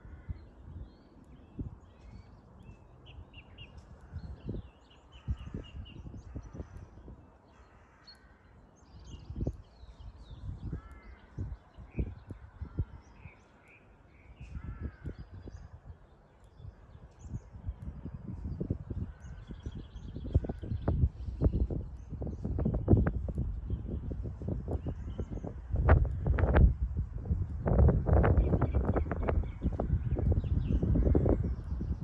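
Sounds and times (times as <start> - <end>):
wind buffeting microphone: 0.0 - 7.7, 8.5 - 32.0
small birds chirping: 0.0 - 26.7, 27.6 - 32.0
crow cawing: 7.5 - 8.6, 10.6 - 11.4, 14.5 - 15.4.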